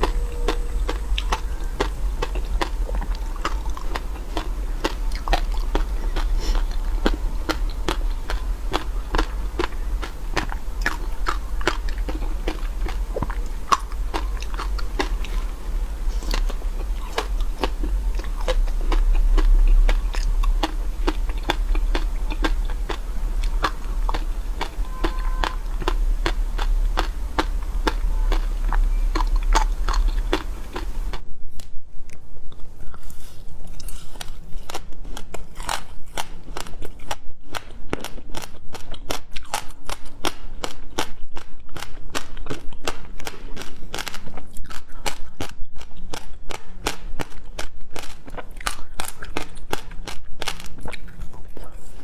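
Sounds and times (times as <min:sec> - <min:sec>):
ice being chewed crunching: 0:00.0 - 0:31.2
low hum: 0:00.0 - 0:31.2.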